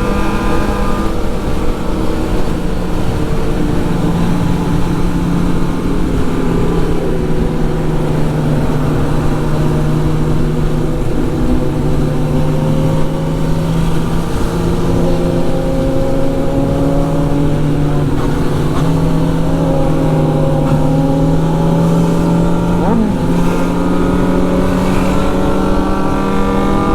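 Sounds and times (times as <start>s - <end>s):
motorcycle engine cruising: 0.0s - 26.9s
road and wind noise: 0.0s - 26.9s.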